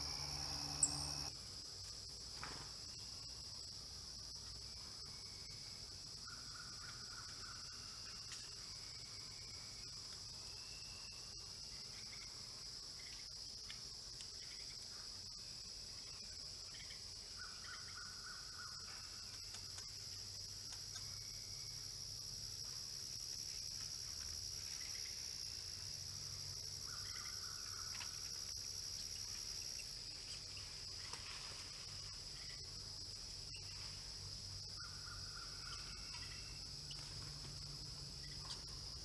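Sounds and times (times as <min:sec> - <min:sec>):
faint buzzy calls: 0:00.0 - 0:01.3
insect chorus: 0:00.0 - 0:39.0.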